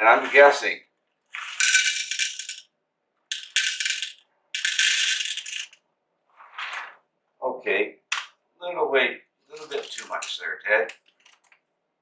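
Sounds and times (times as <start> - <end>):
coffee beans rattling into container: 1.3 - 2.6, 3.3 - 5.8, 9.6 - 10.4.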